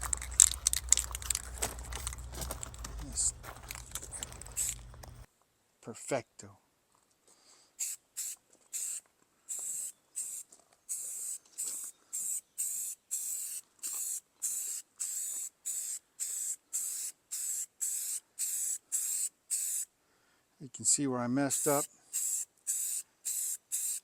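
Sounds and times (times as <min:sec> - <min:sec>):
spray paint hissing bursts: 0:04.5 - 0:04.8, 0:07.8 - 0:19.9, 0:21.5 - 0:24.0.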